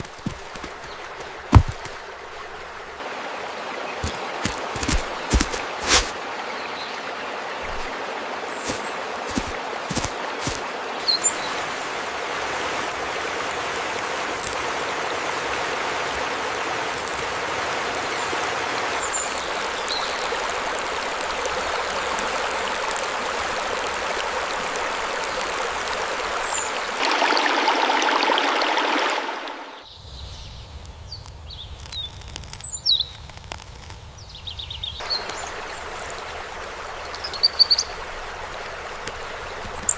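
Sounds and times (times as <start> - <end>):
stream water running: 0.0 - 30.0, 34.6 - 39.9.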